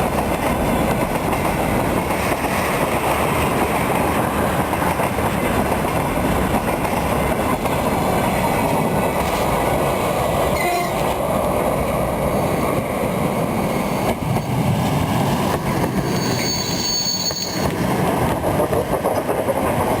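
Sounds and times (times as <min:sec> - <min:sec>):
railway wheels rumbling clacking: 0:00.0 - 0:20.0
high wheel squeal: 0:16.0 - 0:17.8.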